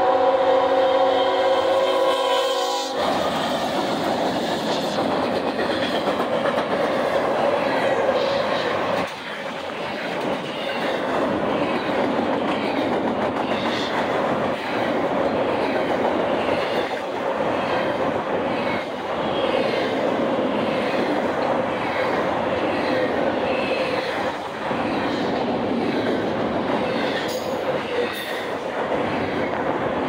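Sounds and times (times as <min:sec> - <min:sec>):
freight train rumbling and clacking: 0:00.0 - 0:30.0.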